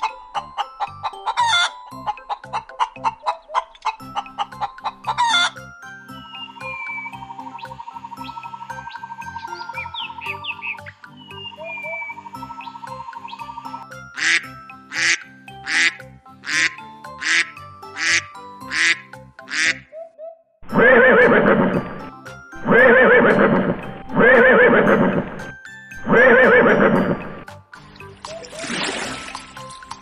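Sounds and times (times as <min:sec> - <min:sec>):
background music: 0:00.0 - 0:20.0, 0:20.6 - 0:30.0
animal calls: 0:18.0 - 0:27.4.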